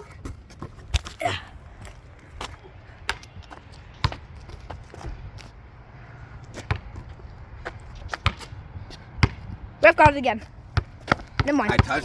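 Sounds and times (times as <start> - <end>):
basketball bouncing on a court: 2.5 - 4.4, 6.6 - 12.0.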